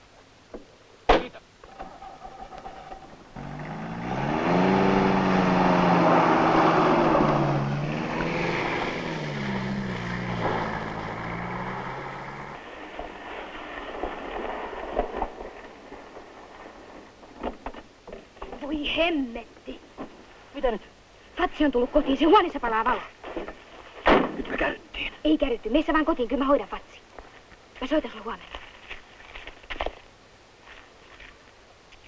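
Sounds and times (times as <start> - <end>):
car engine revving: 3.3 - 12.6.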